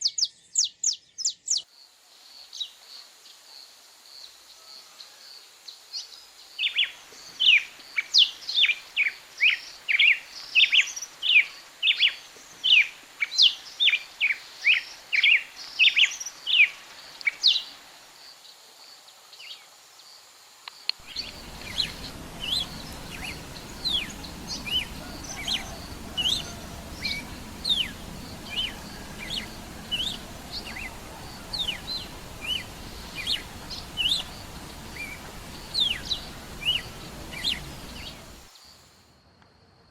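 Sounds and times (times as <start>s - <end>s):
songbird calling: 21.0s - 38.5s.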